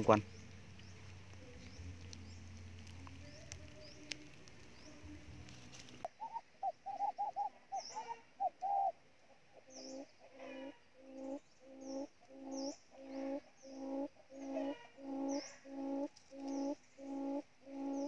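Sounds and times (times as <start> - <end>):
bird hooting notes: 0.0 - 9.0, 9.6 - 18.0
faint high bird chirps: 6.0 - 9.0, 9.6 - 18.0.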